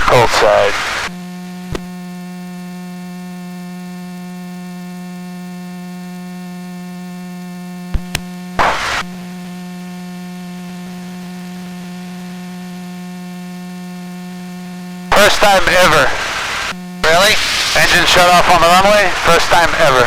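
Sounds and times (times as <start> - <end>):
electrical hum in intercom: 0.0 - 20.0
burst of hiss: 17.3 - 17.9.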